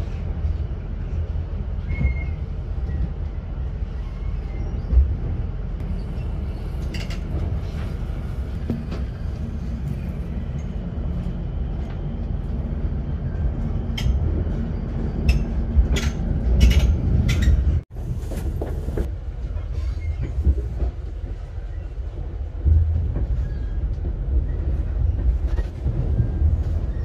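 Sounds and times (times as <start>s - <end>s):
train rumbling: 0.0s - 27.0s.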